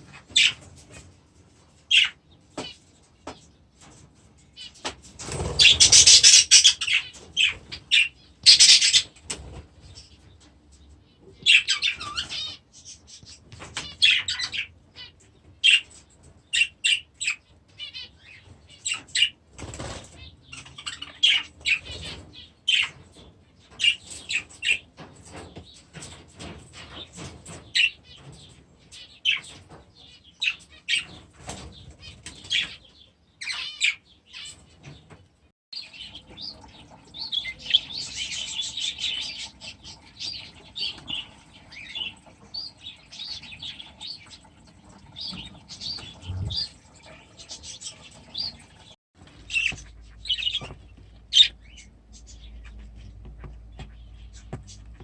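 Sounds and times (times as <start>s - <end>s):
small birds chirping: 0.0s - 55.0s
wings flapping: 4.8s - 7.9s.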